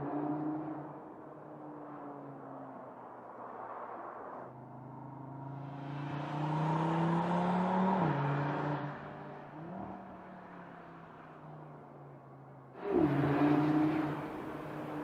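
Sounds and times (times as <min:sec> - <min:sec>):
car engine accelerating: 0:12.8 - 0:15.0.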